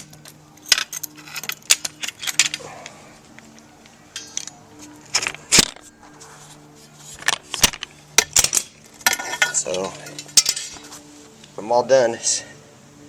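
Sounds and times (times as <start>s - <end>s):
metallic clinks and knocks: 0.0s - 5.9s, 7.2s - 10.9s.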